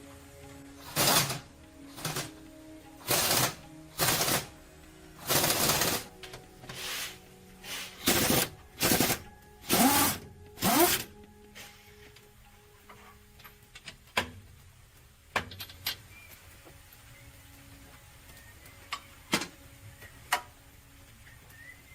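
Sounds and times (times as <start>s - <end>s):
impact wrench rattling: 8.0s - 11.1s.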